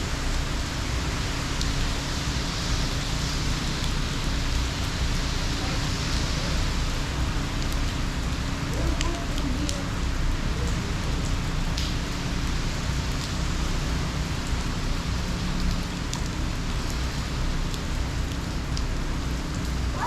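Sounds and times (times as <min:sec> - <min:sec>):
heavy rain pouring: 0:00.0 - 0:20.0
sharp drip ticks: 0:07.4 - 0:09.8, 0:10.6 - 0:19.9.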